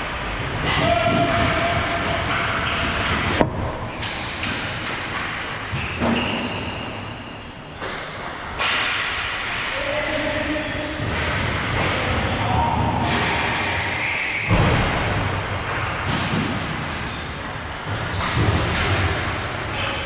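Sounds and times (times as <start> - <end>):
short high squeaks: 5.8 - 8.6.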